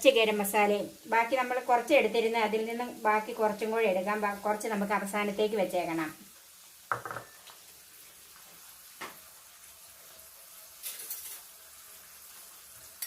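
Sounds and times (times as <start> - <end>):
chicken sizzling in a pan: 0.0 - 13.0
clatter of small knocks: 6.9 - 7.3.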